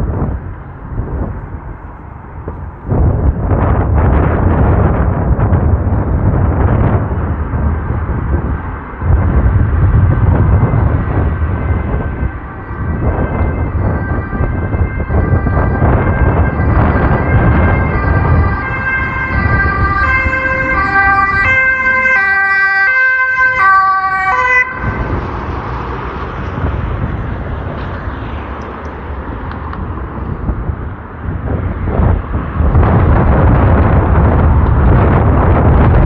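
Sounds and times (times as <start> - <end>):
wind buffeting microphone: 0.0 - 36.0
siren-like pitched signal: 10.4 - 25.4.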